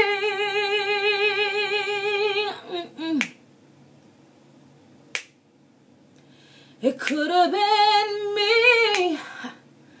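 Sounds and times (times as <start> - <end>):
woman singing: 0.0 - 3.3, 6.8 - 9.6.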